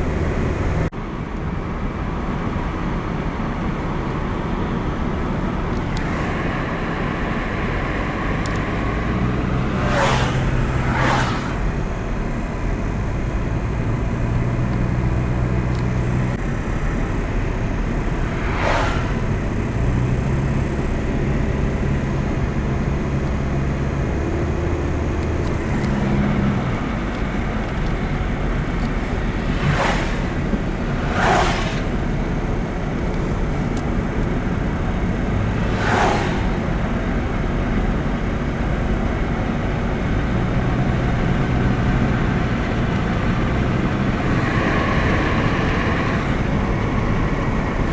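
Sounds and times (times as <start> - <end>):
car road and engine noise: 0.0 - 47.9
brief whooshes: 9.6 - 11.7, 18.2 - 19.5, 28.9 - 32.4, 35.6 - 36.7.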